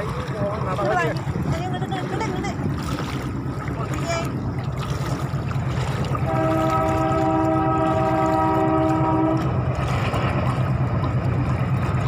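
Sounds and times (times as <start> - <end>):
train horn long blast: 6.2 - 9.6.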